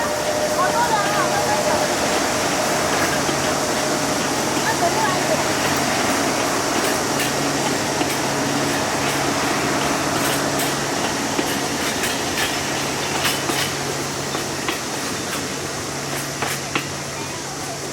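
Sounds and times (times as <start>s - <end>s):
diesel locomotive engine drone: 0.0s - 17.9s
train wheels rumbling: 0.0s - 17.9s
wheels clicking over rail joints: 0.0s - 17.9s.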